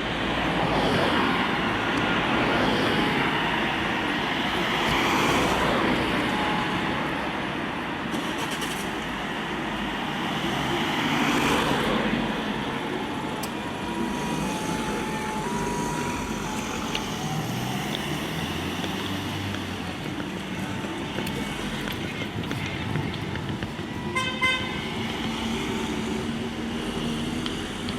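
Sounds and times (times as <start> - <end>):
vehicles driving past: 0.0 - 27.9
two-tone fire engine siren: 0.6 - 7.5, 11.0 - 18.8.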